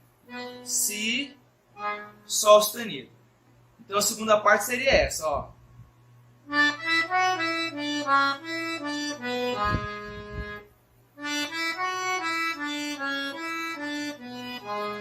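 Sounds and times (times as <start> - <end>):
accordion playing slow melody: 0.2 - 2.4, 6.4 - 15.0.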